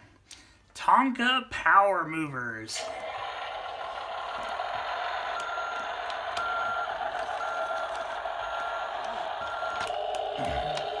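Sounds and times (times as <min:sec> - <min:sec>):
steady hum: 0:02.8 - 0:11.0
toy electronic reversing beep: 0:03.9 - 0:11.0.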